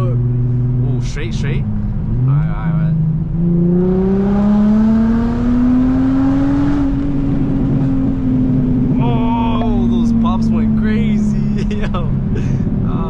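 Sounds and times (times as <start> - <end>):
car exhaust accelerating: 0.0 - 13.0.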